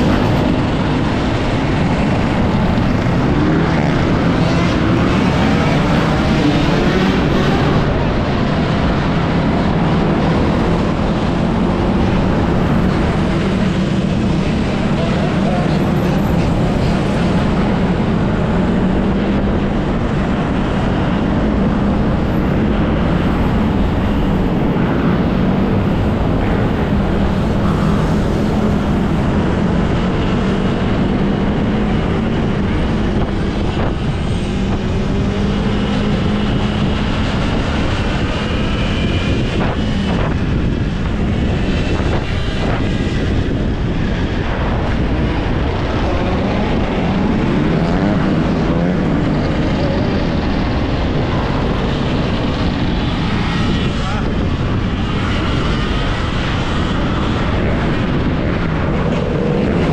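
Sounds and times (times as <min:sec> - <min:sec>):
motorbike engine drone: 0:00.0 - 0:59.9
wind noise on microphone: 0:00.0 - 0:59.9.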